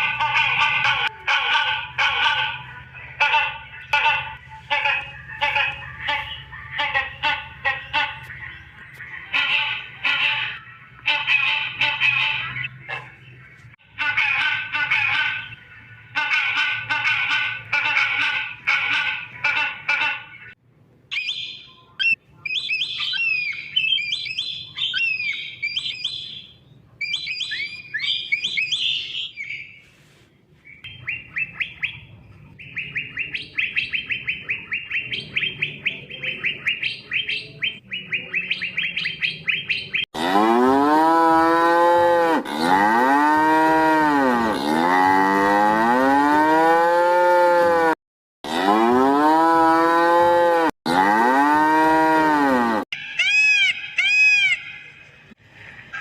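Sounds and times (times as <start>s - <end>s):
cow mooing: 40.2s - 52.8s.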